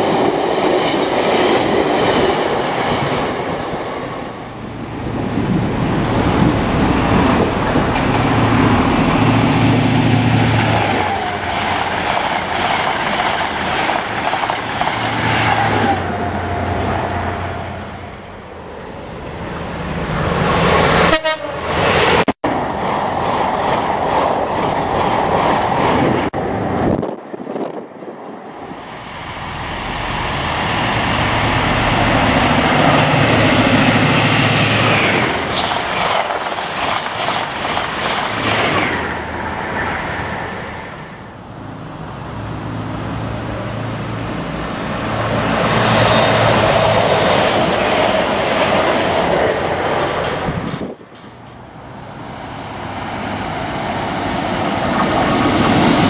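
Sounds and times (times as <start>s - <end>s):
diesel train passing: 0.0s - 56.0s
rail and engine noise: 0.0s - 56.0s
train horn: 21.0s - 21.8s.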